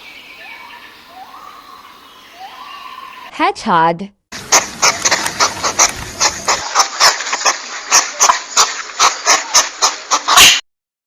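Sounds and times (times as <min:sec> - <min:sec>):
hedgehog sniffing and huffing: 0:04.4 - 0:10.6.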